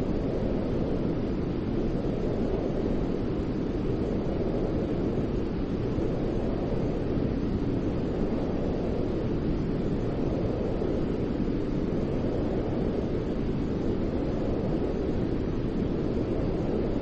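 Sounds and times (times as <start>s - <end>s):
white noise hiss: 0.0s - 17.0s.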